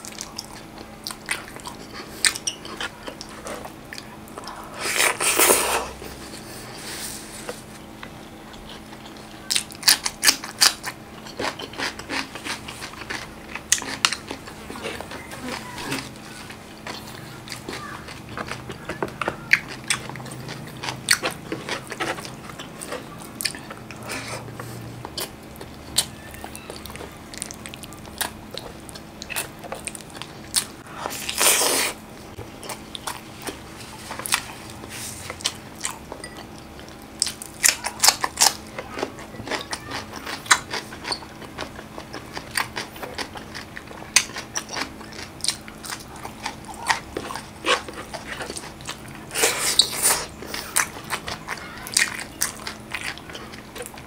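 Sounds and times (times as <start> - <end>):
chewing and wet smacking: 0.0 - 5.3, 7.5 - 54.0.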